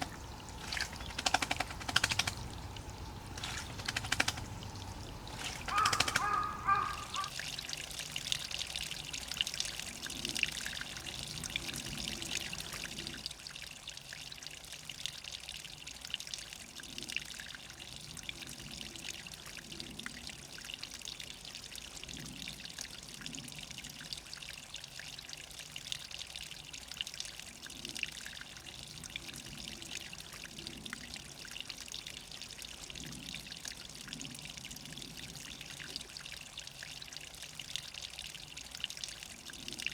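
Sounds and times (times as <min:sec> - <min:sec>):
spring water trickling: 0:00.0 - 0:14.5.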